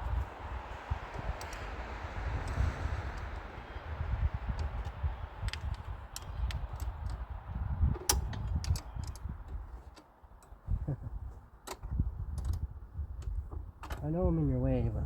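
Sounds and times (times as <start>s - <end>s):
low rumble: 0.0s - 9.5s
metallic clicks of hand tools: 8.0s - 9.3s.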